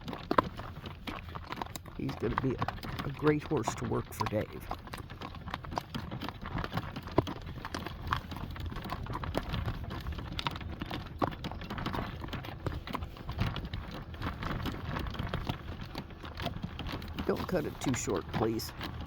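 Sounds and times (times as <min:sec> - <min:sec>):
horse hooves on gravel: 0:00.0 - 0:19.0.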